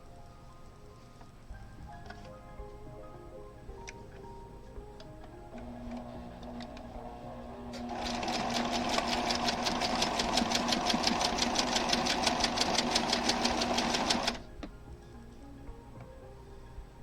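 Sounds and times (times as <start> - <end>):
sewing machine stitching: 5.6 - 14.5.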